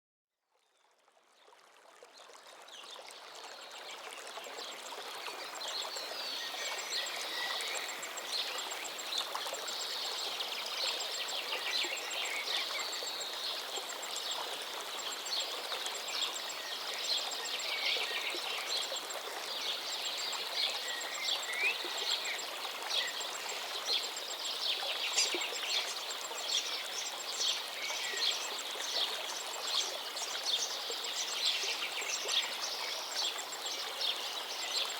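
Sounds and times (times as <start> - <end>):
river stream running: 0.8 - 34.9.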